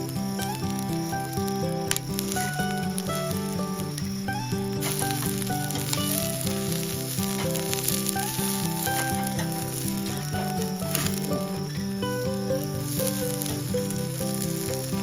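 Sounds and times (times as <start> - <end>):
food sizzling in a pan: 0.0 - 11.4
background music: 0.0 - 15.0.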